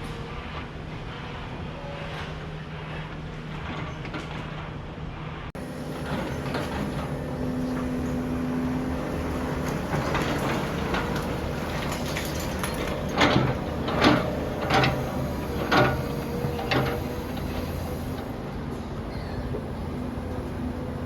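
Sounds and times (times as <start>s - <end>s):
demolition machinery running: 5.6s - 21.0s.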